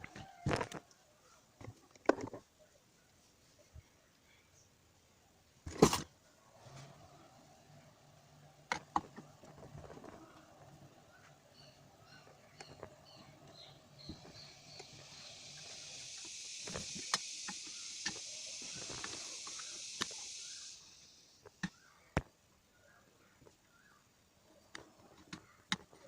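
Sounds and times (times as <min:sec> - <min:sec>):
steady hiss of jetting air: 0:06.6 - 0:21.5.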